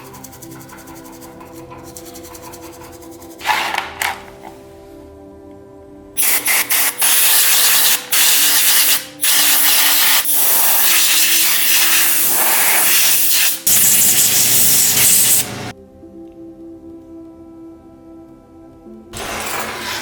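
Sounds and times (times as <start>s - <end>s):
compressed-air tool hissing: 6.2s - 15.7s.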